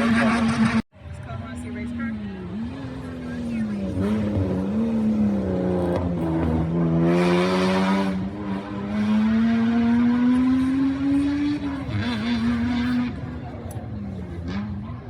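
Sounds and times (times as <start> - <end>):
rally car engine accelerating: 2.1 - 15.0.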